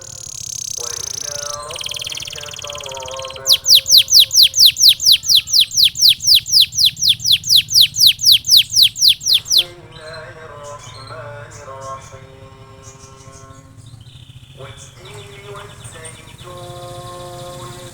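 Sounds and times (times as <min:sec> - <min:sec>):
faint bird chirps: 0:00.0 - 0:10.2
canary singing a fast trill: 0:00.0 - 0:17.9.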